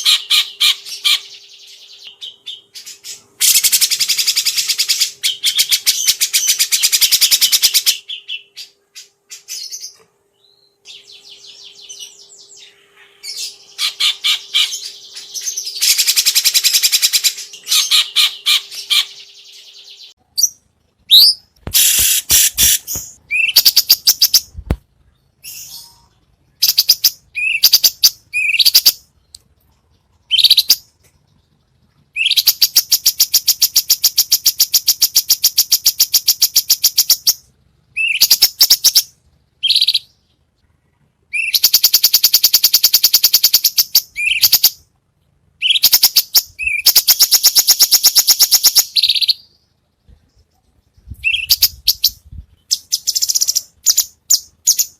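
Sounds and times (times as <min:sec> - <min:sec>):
songbird chirps and whistles: 0:00.0 - 0:29.4, 0:30.3 - 0:31.5, 0:32.1 - 0:40.4, 0:41.3 - 0:44.8, 0:45.6 - 0:54.9
fast rattling bird trills: 0:45.6 - 0:49.4.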